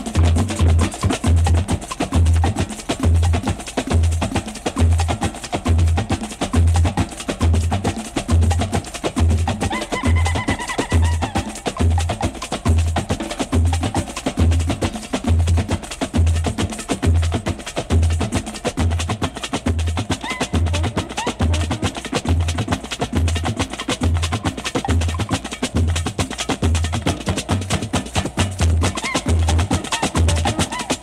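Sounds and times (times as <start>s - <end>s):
busy clicking percussion: 0.0s - 31.0s.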